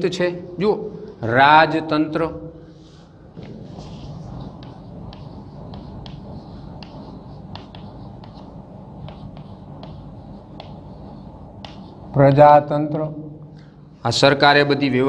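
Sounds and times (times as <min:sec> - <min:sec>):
low background hum: 0:00.0 - 0:15.0
chalk writing on blackboard: 0:02.7 - 0:12.7.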